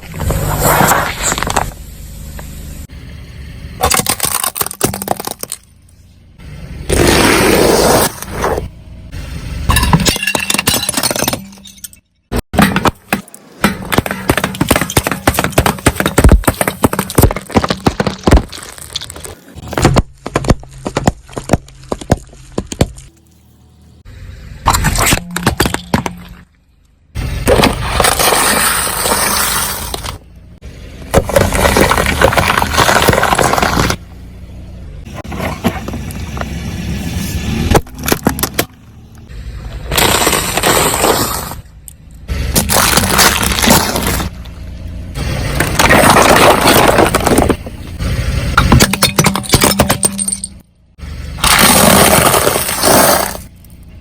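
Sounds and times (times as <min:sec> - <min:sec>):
tyres crushing brittle objects: 0:03.8 - 0:05.7, 0:12.5 - 0:23.1, 0:27.4 - 0:30.2, 0:31.1 - 0:34.0, 0:39.9 - 0:41.6, 0:42.5 - 0:44.5, 0:45.3 - 0:50.6, 0:51.3 - 0:53.7.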